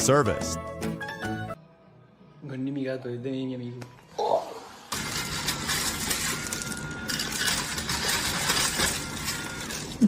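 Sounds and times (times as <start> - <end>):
clinks and knocks of hard objects: 5.0 - 10.0.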